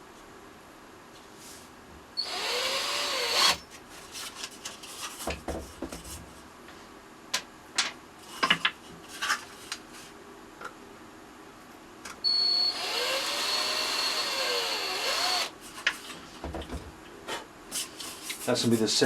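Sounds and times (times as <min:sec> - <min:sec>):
electric drill running: 0:02.2 - 0:03.6, 0:12.5 - 0:15.5.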